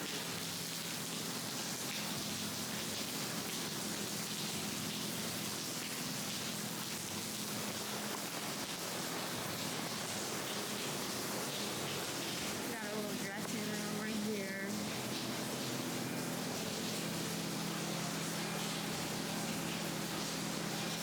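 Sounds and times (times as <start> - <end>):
falling water hissing: 9.4 - 21.0.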